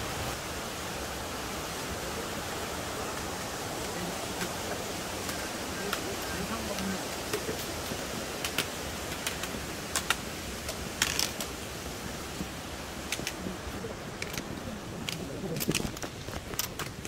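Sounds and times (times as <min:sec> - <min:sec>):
steady background hiss: 0:00.0 - 0:17.0
trekking pole tips clicking on rock: 0:08.4 - 0:11.5, 0:13.0 - 0:13.4, 0:14.2 - 0:17.0.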